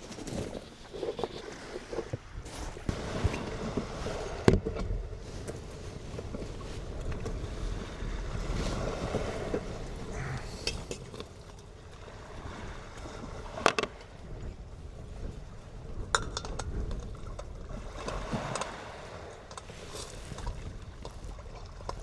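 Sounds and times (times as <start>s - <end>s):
surf: 0.0s - 22.0s
wind: 0.0s - 22.0s.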